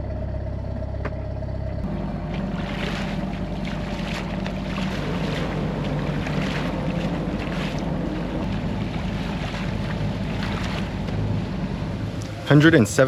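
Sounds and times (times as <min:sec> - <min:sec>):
boat engine humming: 0:00.0 - 0:13.0
wind: 0:00.0 - 0:13.0
water rushing: 0:01.9 - 0:13.0.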